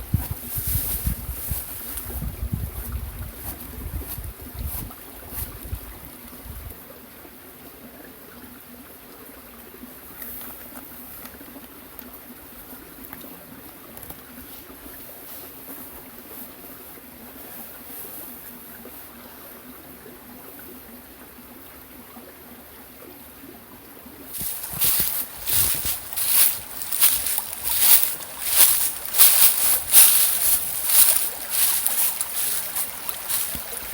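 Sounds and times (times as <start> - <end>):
wind buffeting microphone: 0.0 - 6.7
small stream flowing: 0.0 - 33.9.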